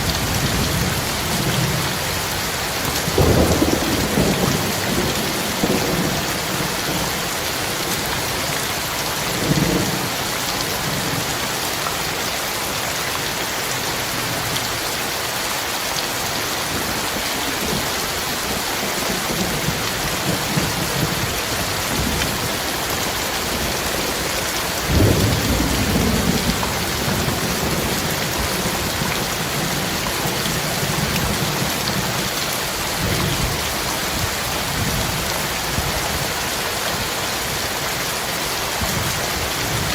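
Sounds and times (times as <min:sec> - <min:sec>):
thunder rumbling: 0:00.0 - 0:07.3, 0:17.4 - 0:36.0
heavy rain: 0:00.0 - 0:39.9.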